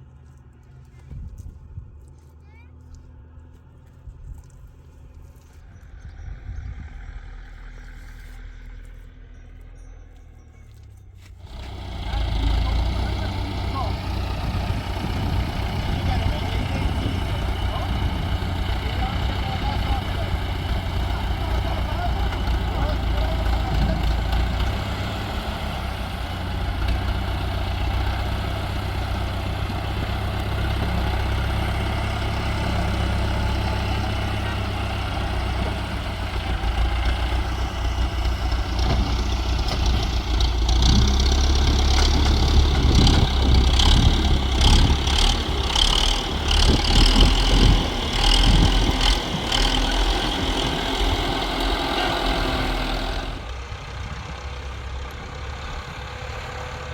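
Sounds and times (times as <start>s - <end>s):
tractor engine running: 0.0s - 56.9s
scraping and rattling: 33.5s - 53.5s.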